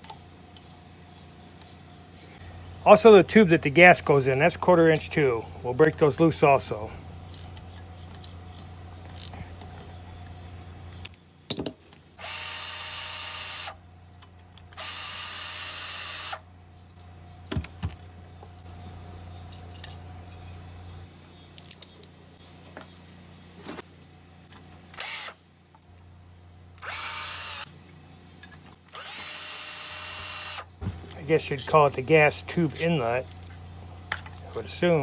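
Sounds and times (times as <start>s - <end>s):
power drill running: 12.2s - 13.8s, 14.8s - 16.4s, 25.0s - 25.4s, 26.8s - 27.7s, 28.9s - 30.7s.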